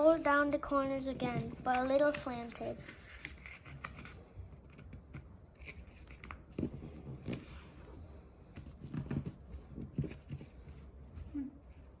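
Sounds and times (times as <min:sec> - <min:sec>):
paper folding and rustling: 0:00.0 - 0:05.0.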